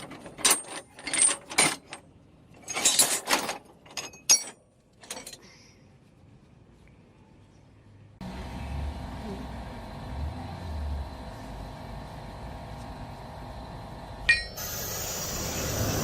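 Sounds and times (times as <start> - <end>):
metallic clicks and clatters: 0.0 - 5.4.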